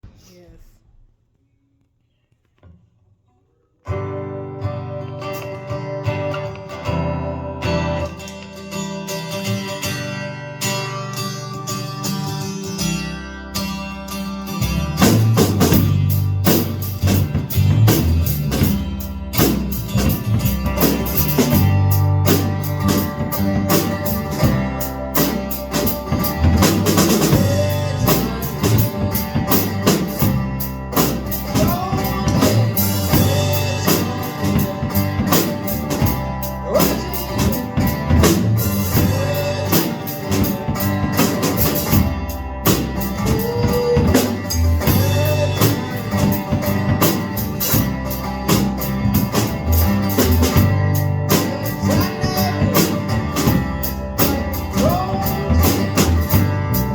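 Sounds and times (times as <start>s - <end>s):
guitar: 2.1s - 56.9s
bass line: 12.1s - 56.9s
drum kit beat: 14.6s - 56.9s.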